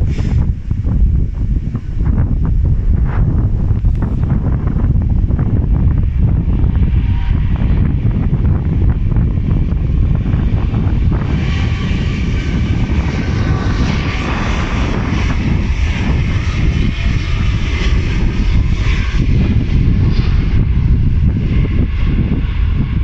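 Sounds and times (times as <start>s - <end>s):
faint high engine whine: 0.0s - 23.0s
jet engines rumbling: 0.0s - 23.0s.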